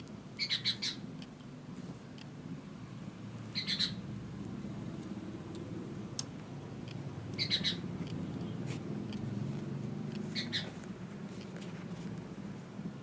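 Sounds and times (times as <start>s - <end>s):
low background hum: 0.0s - 13.0s
songbird chirping: 7.4s - 8.7s.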